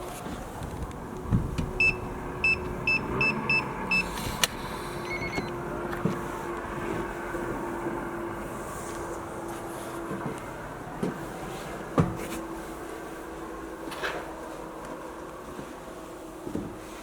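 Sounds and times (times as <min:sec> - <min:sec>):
door lock keypad beeps: 0:01.8 - 0:04.1, 0:05.0 - 0:05.6.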